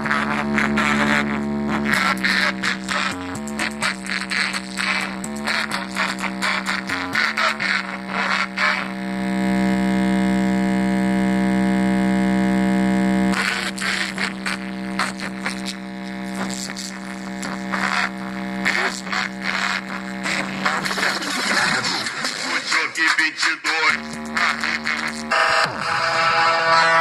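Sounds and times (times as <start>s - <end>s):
loud buzzing tone from speakers: 0.0s - 27.0s
busy music: 24.0s - 27.0s.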